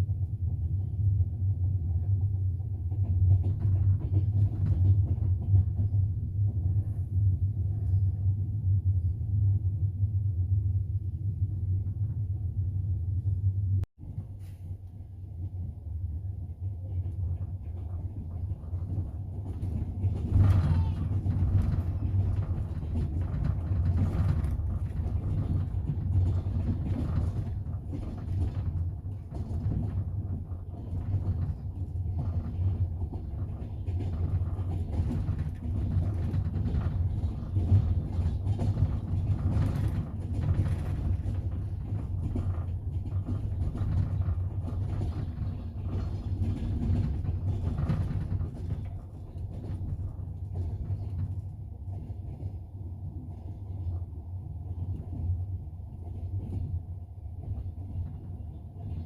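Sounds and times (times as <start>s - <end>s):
train low rumble: 0.0s - 59.0s
wheels clacking over rail joints: 16.7s - 52.7s.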